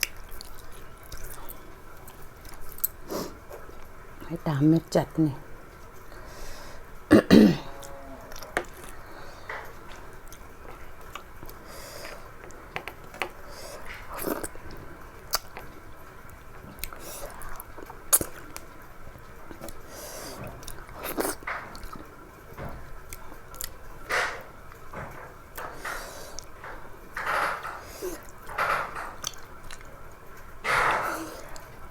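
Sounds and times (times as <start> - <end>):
person chewing food: 0.0 - 3.8, 7.6 - 18.8, 19.5 - 22.1, 23.1 - 23.8, 25.6 - 26.9, 27.6 - 30.0
person clearing throat: 7.1 - 7.8.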